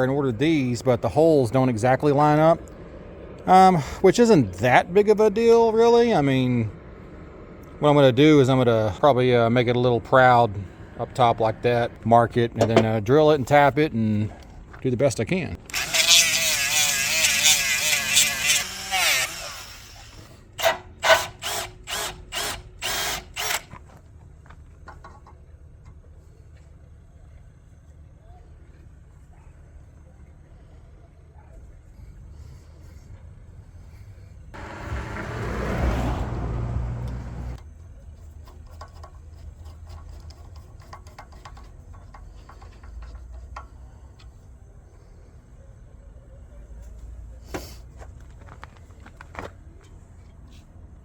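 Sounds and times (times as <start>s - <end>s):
low steady rumble: 0.0s - 16.0s, 23.9s - 47.4s
power drill spinning: 15.6s - 23.7s.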